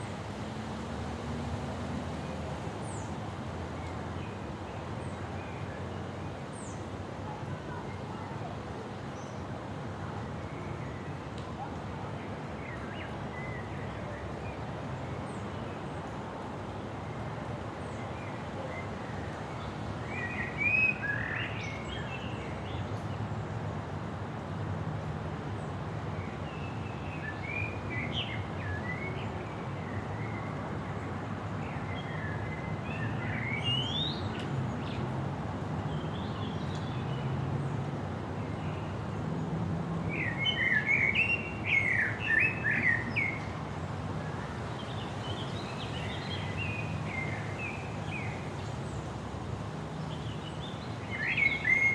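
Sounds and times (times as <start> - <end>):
birds chirping: 50.0 - 51.9.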